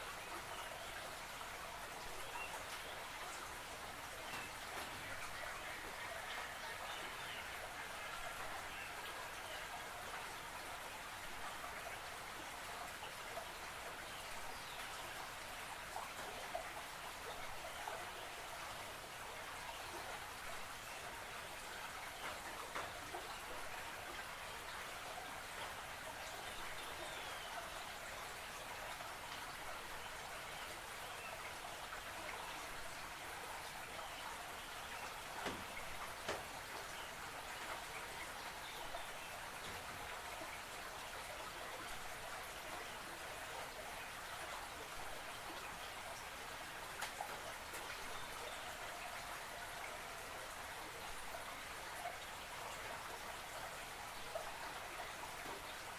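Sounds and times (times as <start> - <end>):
creek water trickling and splashing: 0.0 - 55.9.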